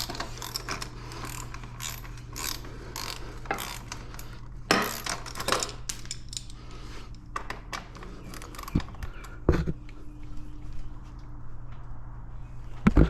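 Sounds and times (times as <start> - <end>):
metal tool clicks and clinks: 0.0 - 6.6.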